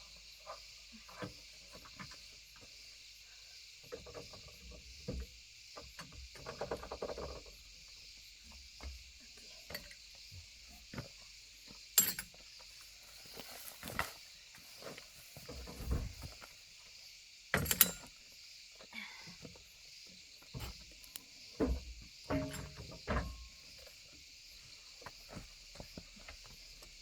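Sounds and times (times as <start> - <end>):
insects chirring: 0.0 - 27.0
clicks and knocks: 21.6 - 23.4.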